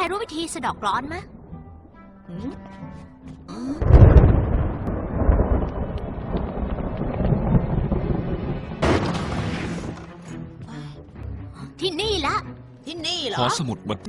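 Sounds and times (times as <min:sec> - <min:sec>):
deep rolling rumble: 0:03.8 - 0:10.8.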